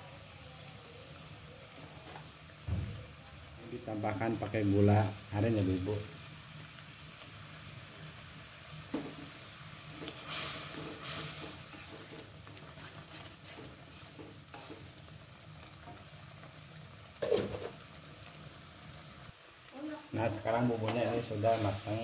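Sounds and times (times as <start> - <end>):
chili paste sizzling: 0.0 - 22.0
metal spatula scraping a pan: 9.9 - 16.1, 20.8 - 22.0.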